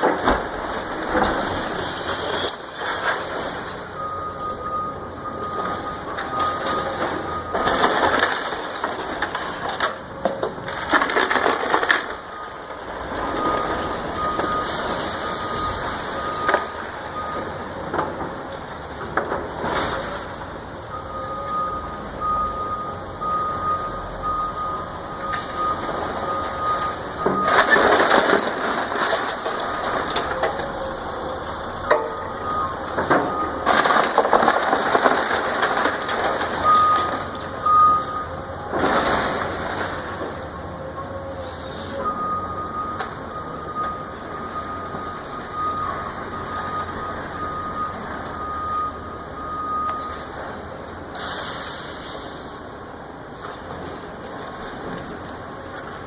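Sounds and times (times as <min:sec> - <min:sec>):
debris crashing and crunching: 0:00.0 - 0:04.2, 0:04.8 - 0:20.6, 0:25.2 - 0:41.4
demolition machinery: 0:00.0 - 0:56.0
back-up alarm beeping: 0:20.9 - 0:27.6, 0:30.9 - 0:33.6, 0:42.0 - 0:50.2.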